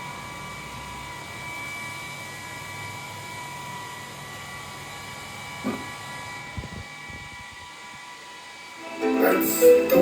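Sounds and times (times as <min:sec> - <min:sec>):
whirring hum: 0:00.0 - 0:10.0
faint high whines: 0:07.4 - 0:10.0.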